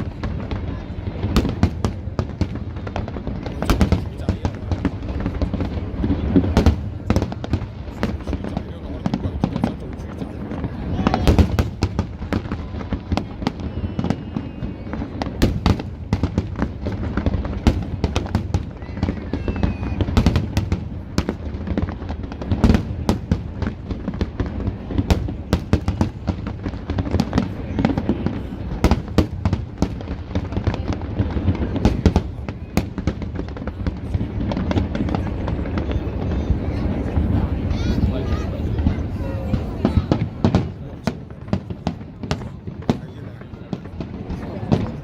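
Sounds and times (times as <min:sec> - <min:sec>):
fireworks cracks and bangs: 0:00.0 - 0:45.0
faint firework whistle: 0:12.6 - 0:15.7, 0:18.4 - 0:20.6.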